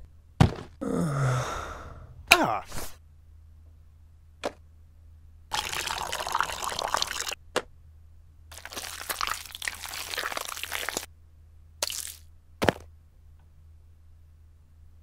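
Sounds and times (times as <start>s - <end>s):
milk pouring: 5.5s - 7.4s, 8.5s - 11.1s.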